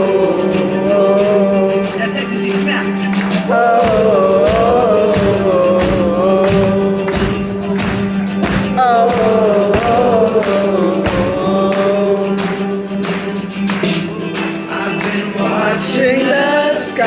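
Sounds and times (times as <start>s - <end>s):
rock band playing: 2.3s - 16.1s
steady drum beat: 2.7s - 15.6s.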